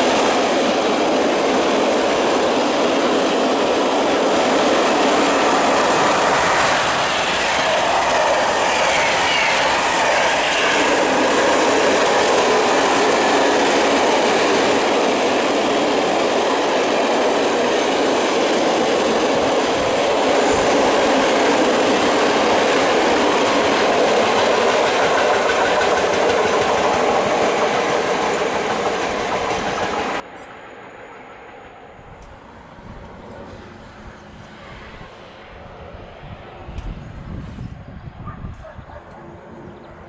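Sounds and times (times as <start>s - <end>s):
clickety-clack of rail joints: 0.0s - 30.5s
train wheels rumbling on rails: 0.0s - 30.6s.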